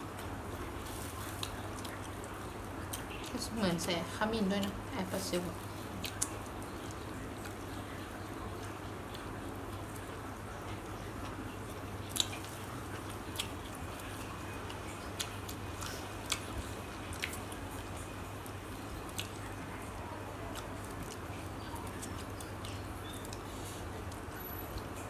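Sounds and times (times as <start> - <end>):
person chewing food: 0.2 - 3.3, 5.6 - 25.0.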